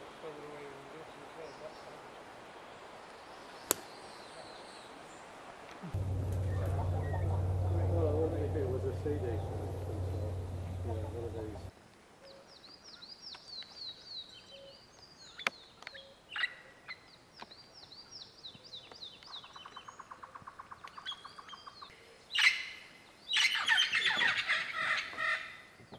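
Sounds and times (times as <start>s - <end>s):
high downward-sliding bird chirps: 5.9s - 11.7s.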